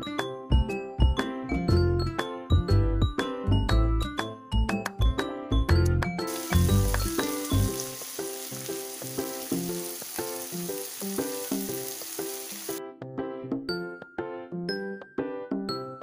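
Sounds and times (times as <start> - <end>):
background music: 0.0 - 16.0
onion and tomato sizzling in oil: 6.3 - 12.8.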